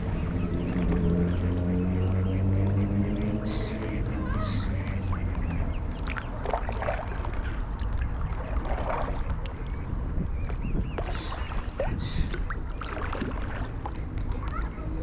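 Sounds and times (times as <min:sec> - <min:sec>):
wind rumble on microphone: 0:00.0 - 0:15.0
paddle splashing in water: 0:04.2 - 0:09.8, 0:10.4 - 0:15.0
bird chirps: 0:10.4 - 0:12.4.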